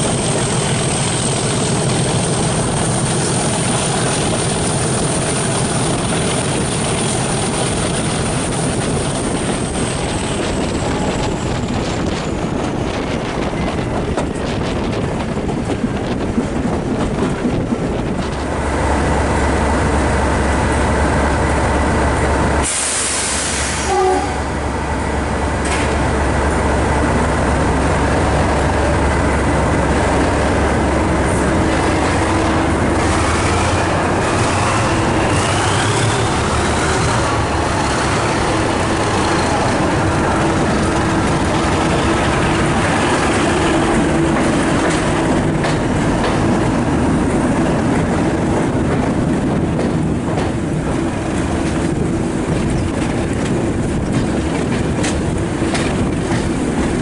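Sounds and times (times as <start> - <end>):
wind and train wheel noise: 0.0 - 57.0
sharp hiss: 22.6 - 23.9.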